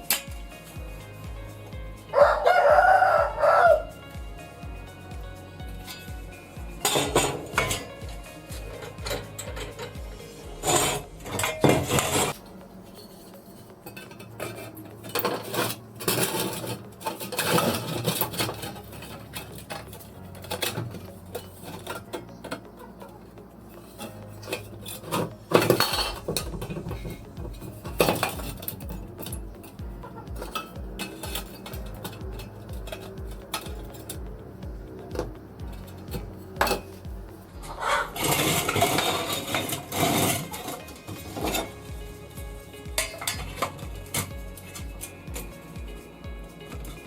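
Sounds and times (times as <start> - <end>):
background music with low beat: 0.0 - 47.0
metal tools clinking: 10.6 - 37.5.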